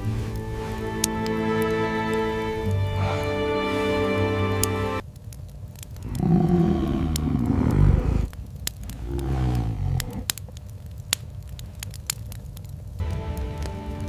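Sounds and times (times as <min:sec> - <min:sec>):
wood fire crackling: 0:00.0 - 0:14.0
wolf growling: 0:06.0 - 0:10.4.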